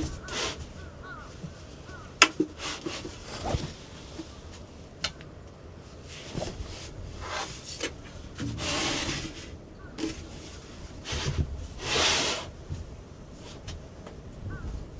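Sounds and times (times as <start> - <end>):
short rustles: 2.6 - 4.7.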